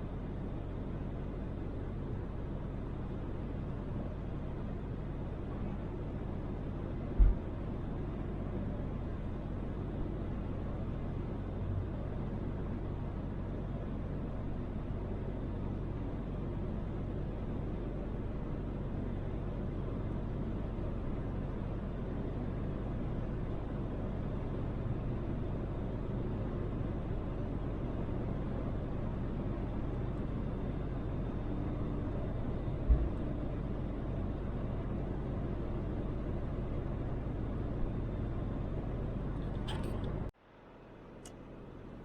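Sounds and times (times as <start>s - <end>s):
engine drone inside car: 0.0s - 42.0s
road noise: 21.8s - 42.0s.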